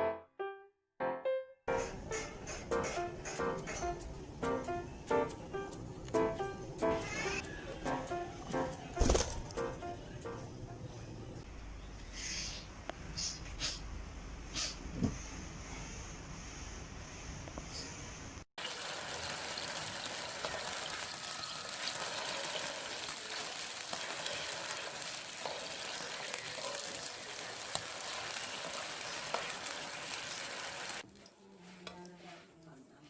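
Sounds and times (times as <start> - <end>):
food sizzling in a pan: 18.6 - 31.3.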